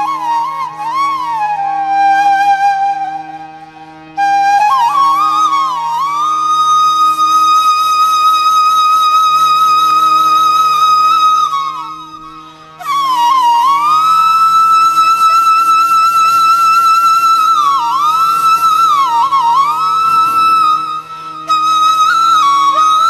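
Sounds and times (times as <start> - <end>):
flute music: 0.0 - 23.0
steady low drone: 17.6 - 22.5.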